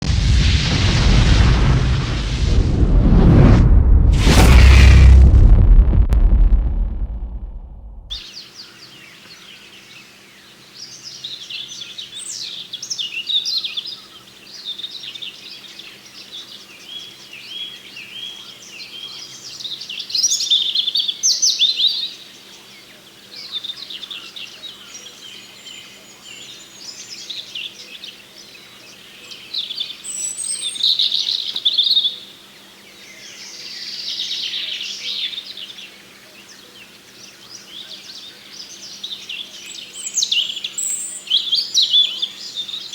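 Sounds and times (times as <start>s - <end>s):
songbirds chirping chorus: 8.2s - 42.9s.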